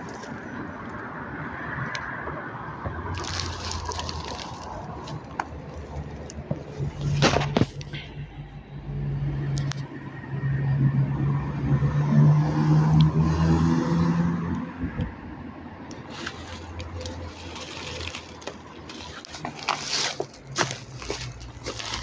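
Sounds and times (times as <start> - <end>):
train drive hum: 15.9 - 22.0.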